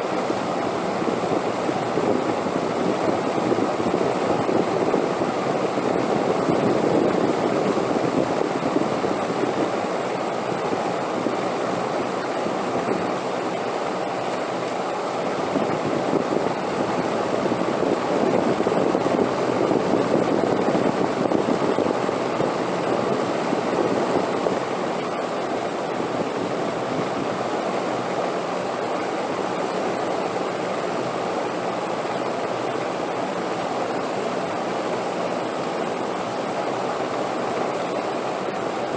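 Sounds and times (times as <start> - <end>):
wind blowing in gusts: 0.9 - 11.9, 15.3 - 27.7.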